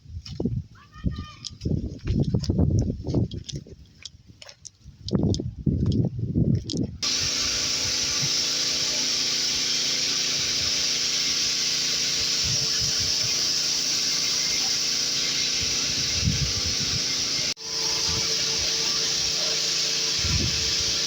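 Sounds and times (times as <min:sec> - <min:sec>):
pressure washer spraying water: 0:07.0 - 0:21.0.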